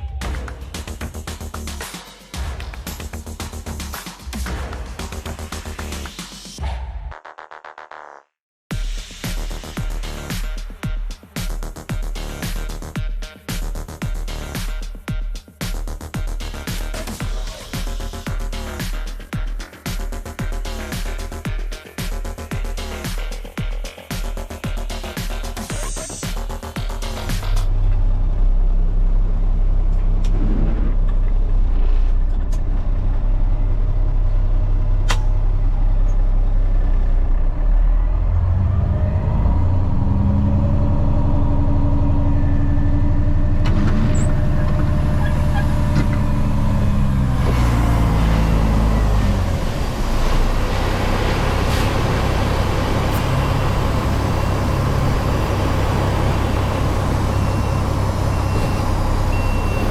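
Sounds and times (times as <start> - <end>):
truck diesel engine revving: 24.8 - 59.9.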